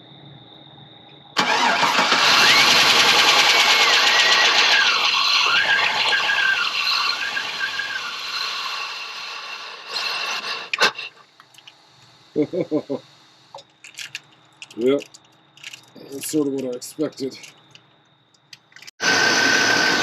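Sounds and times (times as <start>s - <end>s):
wavering squeal: 1.4s - 9.2s
truck engine running: 1.4s - 9.8s.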